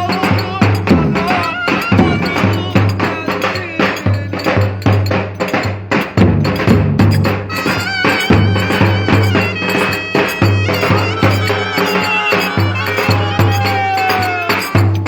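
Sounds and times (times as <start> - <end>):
drum beat: 0.0 - 15.0
wind instrument melody: 6.6 - 15.0.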